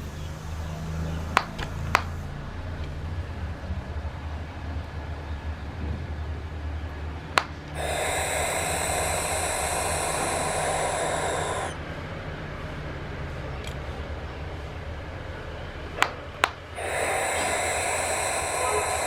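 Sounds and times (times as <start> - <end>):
owl hissing screech: 7.4 - 11.8, 16.8 - 19.0.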